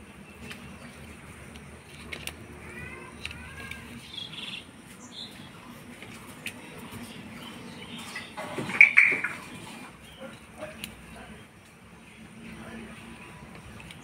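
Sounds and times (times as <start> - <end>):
bird chirping: 2.8 - 5.7, 6.6 - 12.2.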